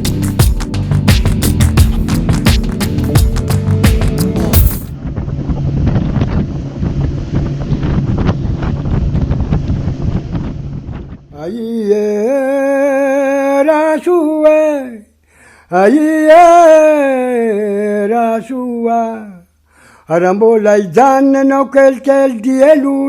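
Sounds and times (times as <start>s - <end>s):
boat running at sea: 5.0s - 11.3s
wind buffeting microphone: 5.0s - 11.3s
person singing long sliding notes: 11.3s - 14.4s.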